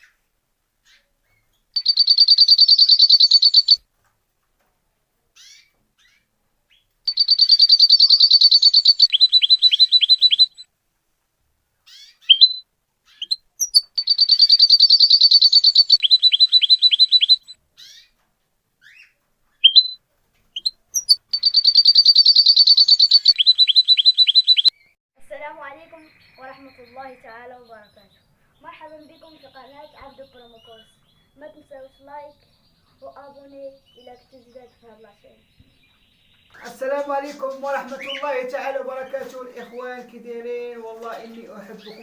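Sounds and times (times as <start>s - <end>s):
canary singing trills: 0.8s - 3.8s, 5.4s - 10.7s, 11.8s - 18.2s, 18.8s - 42.0s
short chirps: 1.8s - 3.8s, 13.2s - 17.6s, 20.6s - 24.9s.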